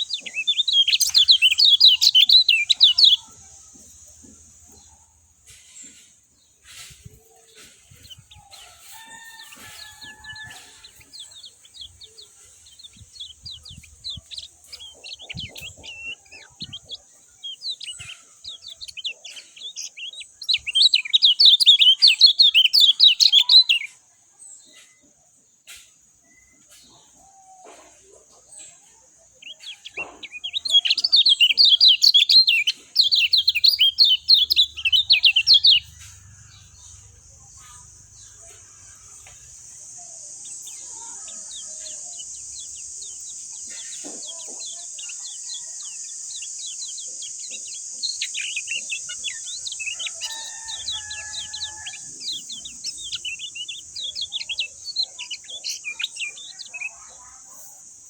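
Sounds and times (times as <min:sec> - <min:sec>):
bird twittering chatter: 0:00.0 - 0:24.0, 0:28.5 - 0:58.0
steady high hiss: 0:33.4 - 0:58.0.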